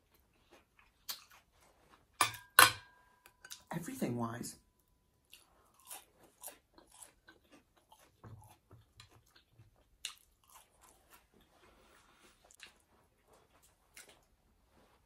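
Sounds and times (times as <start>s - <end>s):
chewing food: 0.0s - 1.8s, 5.2s - 14.4s.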